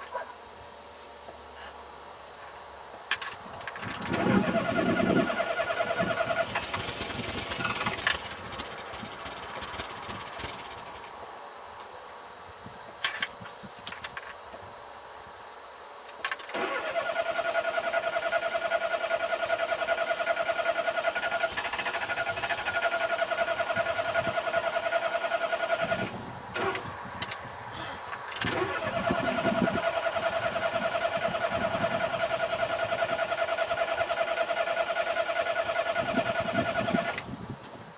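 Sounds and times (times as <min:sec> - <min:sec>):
starter motor cranking engine: 0:03.1 - 0:11.1, 0:16.2 - 0:27.4, 0:28.2 - 0:37.4.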